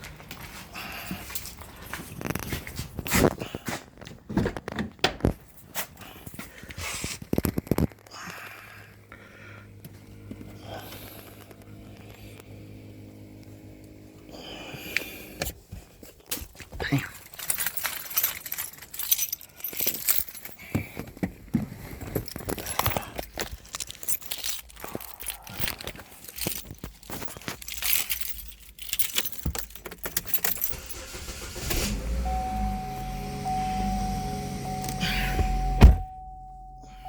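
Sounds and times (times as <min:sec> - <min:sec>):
low steady hum: 0:07.9 - 0:16.3, 0:17.2 - 0:37.0
metal clinking and rattling: 0:16.2 - 0:31.3.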